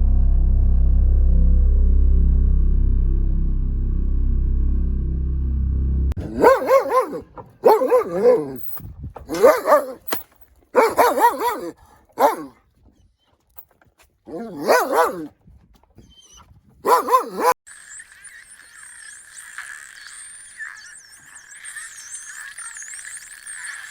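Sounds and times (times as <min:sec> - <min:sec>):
dog barking: 0:06.2 - 0:08.7, 0:09.3 - 0:10.1, 0:10.8 - 0:12.6, 0:14.3 - 0:15.3, 0:16.8 - 0:17.6.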